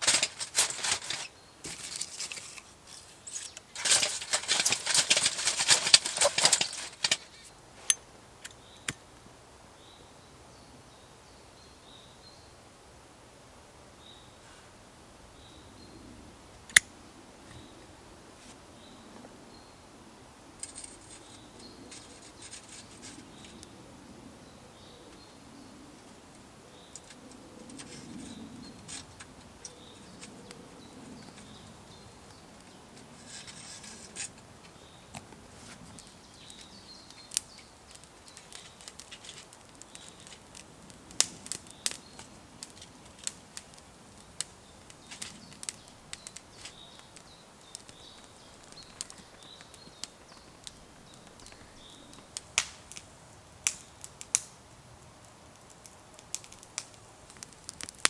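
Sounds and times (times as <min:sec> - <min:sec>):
campfire crackling: 0:00.0 - 0:09.4, 0:16.1 - 0:58.0.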